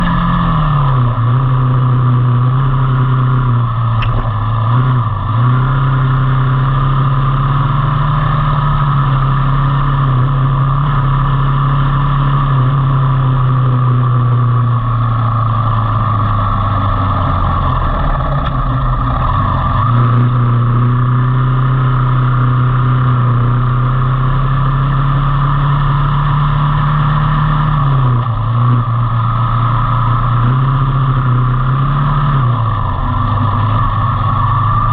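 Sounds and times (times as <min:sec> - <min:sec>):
motorcycle engine running: 0:00.0 - 0:34.9
road and wind noise: 0:00.0 - 0:34.9.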